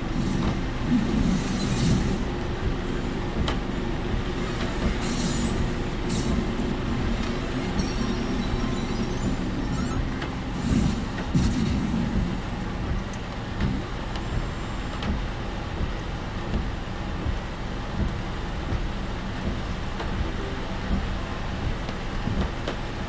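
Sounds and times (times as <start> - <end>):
low rumble: 0.0 - 23.0
road and rain noise in car: 10.1 - 23.0.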